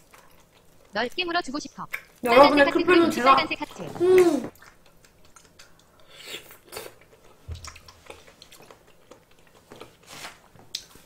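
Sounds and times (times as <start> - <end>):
person chewing wetly: 0.0 - 1.0, 4.2 - 10.0.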